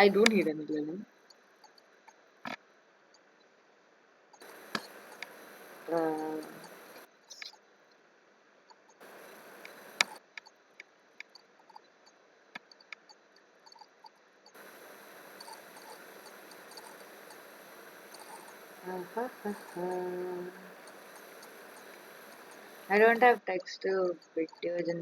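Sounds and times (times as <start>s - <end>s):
held hum: 0.0s - 0.6s, 4.4s - 7.1s, 9.0s - 10.2s, 14.6s - 23.4s.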